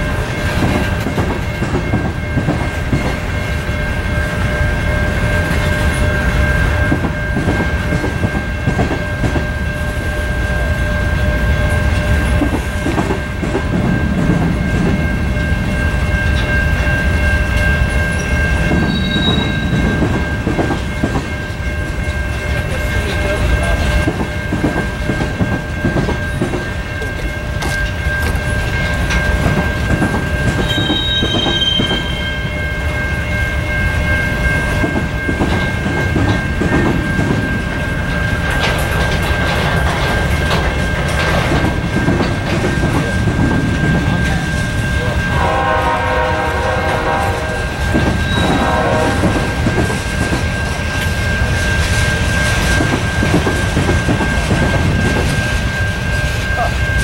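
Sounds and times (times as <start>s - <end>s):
wheels clicking over rail joints: 5.3s - 45.2s
train horn blasts: 45.3s - 49.7s.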